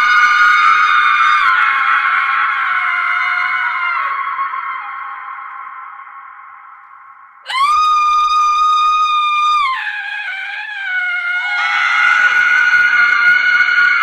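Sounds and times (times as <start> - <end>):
women screaming: 7.5 - 14.0.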